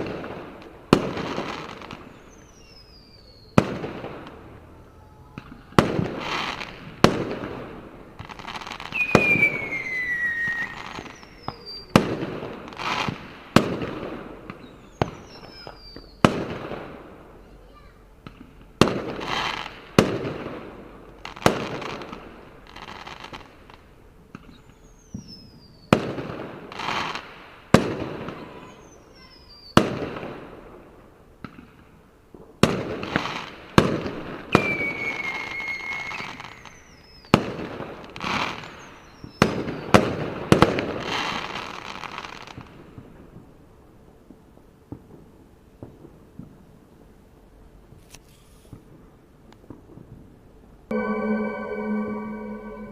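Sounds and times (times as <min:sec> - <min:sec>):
firework bangs with crackle: 0:05.4 - 0:15.6, 0:16.2 - 0:17.0
firework whistles: 0:08.8 - 0:12.0, 0:34.5 - 0:37.3.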